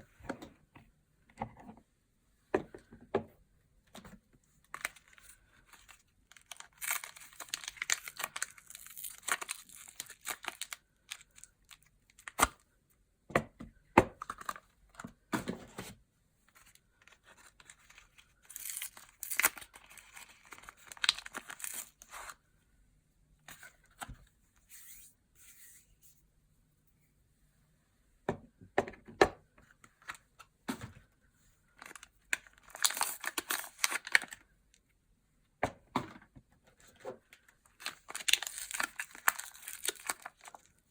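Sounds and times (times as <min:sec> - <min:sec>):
packaging tearing and crinkling: 0:04.7 - 0:12.6, 0:17.9 - 0:22.4, 0:31.8 - 0:34.4, 0:37.7 - 0:40.7.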